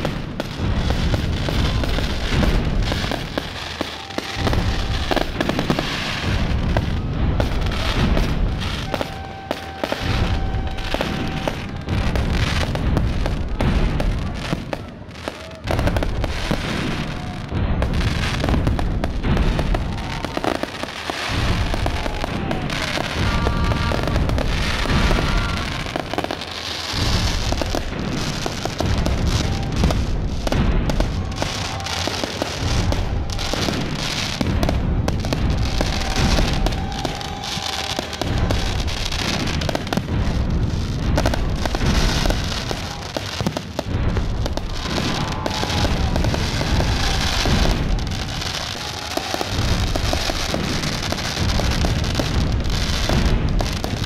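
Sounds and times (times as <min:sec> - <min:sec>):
fireworks bangs and crackling: 0:00.0 - 0:54.0
low booms: 0:00.0 - 0:54.0.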